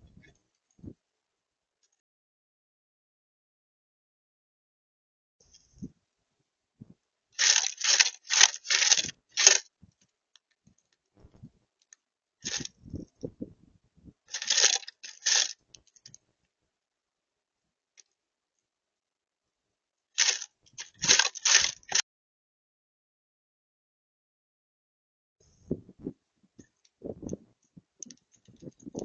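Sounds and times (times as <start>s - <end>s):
birds scrabbling at feeder: 14.3s - 15.6s.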